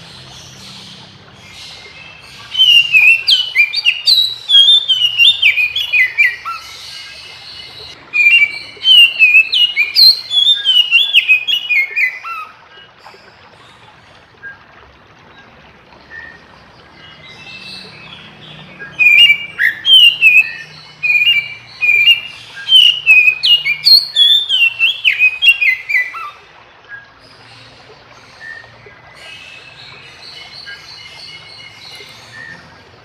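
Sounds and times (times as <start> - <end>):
bird singing whistled phrases: 2.5 - 7.0, 8.1 - 12.5, 18.8 - 27.1, 30.6 - 32.8.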